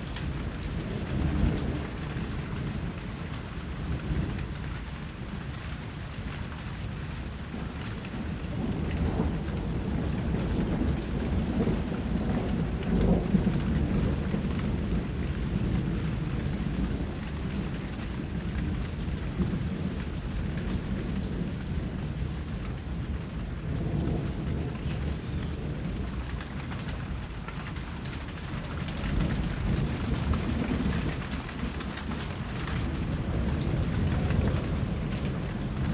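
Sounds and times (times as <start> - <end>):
rain hissing and pattering: 0.0 - 35.9
low rolling rumble: 8.2 - 35.9.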